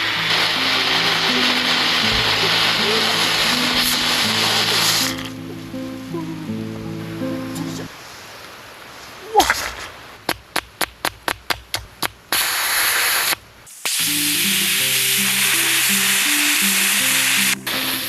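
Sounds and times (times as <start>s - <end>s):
steam hissing from valve: 0.0s - 5.4s, 12.3s - 18.0s.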